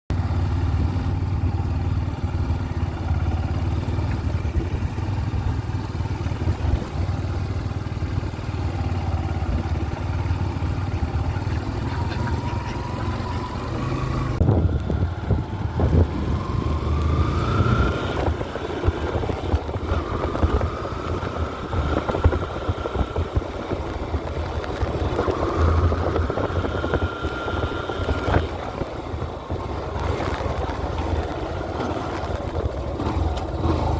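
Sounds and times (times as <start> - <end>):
motorcycle engine accelerating: 0.1 - 33.9.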